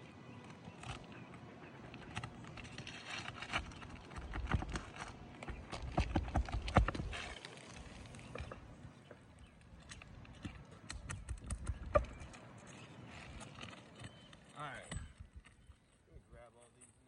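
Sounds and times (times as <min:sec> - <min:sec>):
shingles and nails knocking: 0:02.1 - 0:07.2.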